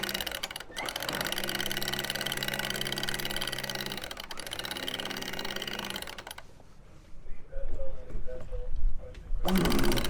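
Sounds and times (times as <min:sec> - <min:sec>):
winch motor whirring: 0:00.0 - 0:06.4, 0:09.5 - 0:10.0
fast winch clicking: 0:00.0 - 0:06.5, 0:09.5 - 0:10.0.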